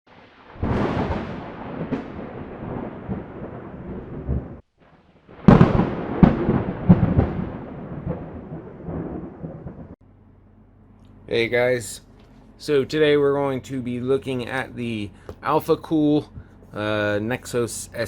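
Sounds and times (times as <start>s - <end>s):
booming rumbling sound effects: 0.1s - 10.0s.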